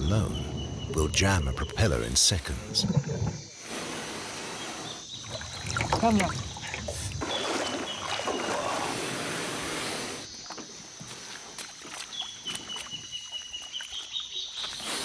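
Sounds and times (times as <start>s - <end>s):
rushing water: 5.2s - 9.4s.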